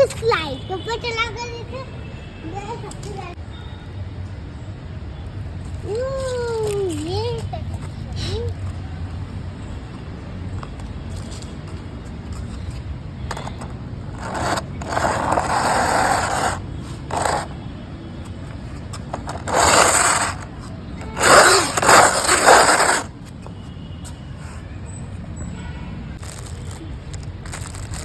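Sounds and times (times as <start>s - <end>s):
toy train scraping on surface: 13.3s - 17.7s, 19.1s - 23.2s.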